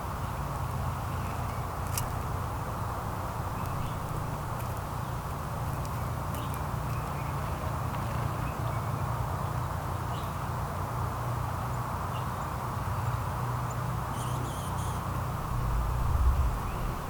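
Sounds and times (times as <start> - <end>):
outdoor background hum: 0.0 - 17.0
faint short bird chirps: 14.1 - 15.1.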